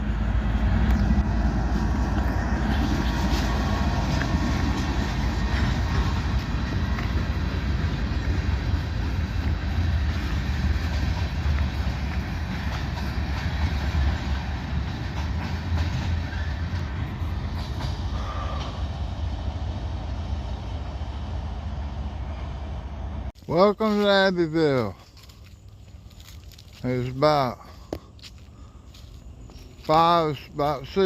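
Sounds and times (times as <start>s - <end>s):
diesel locomotive rumble: 0.0s - 31.0s
train wheels clicking on rails: 0.5s - 19.4s.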